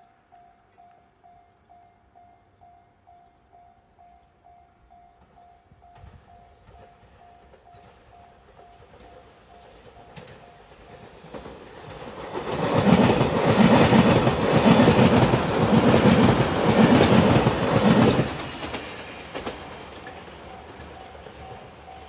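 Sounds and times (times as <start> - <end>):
train wheels clattering over rail joints: 6.0 - 22.0.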